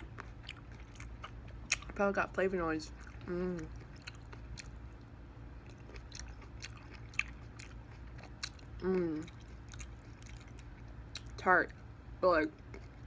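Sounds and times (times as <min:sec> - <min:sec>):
biting and chewing grapes: 0:00.0 - 0:11.8, 0:12.5 - 0:13.0
person humming: 0:03.3 - 0:03.7, 0:08.8 - 0:09.3.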